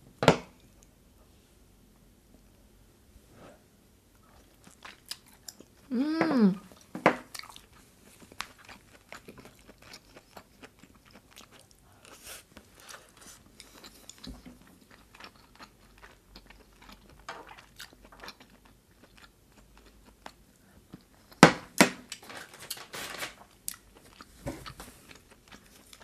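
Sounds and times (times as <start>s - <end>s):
mouth chewing food: 6.6s - 21.2s.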